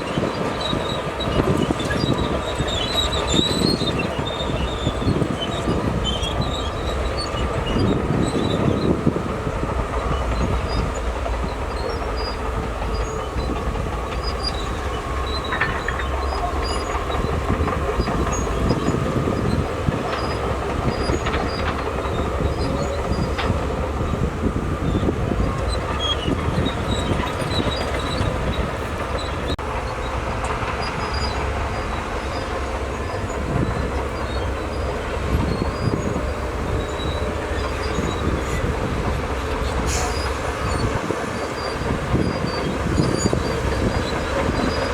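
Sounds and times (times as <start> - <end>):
bulldozer diesel engine running: 0.0 - 44.9
steel tracks clattering: 0.0 - 44.9.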